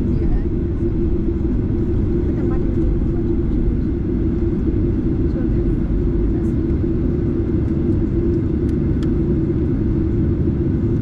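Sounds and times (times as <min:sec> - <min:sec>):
airplane cabin engine drone: 0:00.0 - 0:11.0.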